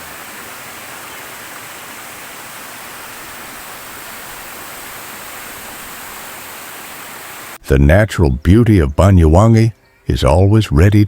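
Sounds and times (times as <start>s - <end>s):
rush of fast-flowing water: 0.0s - 7.6s.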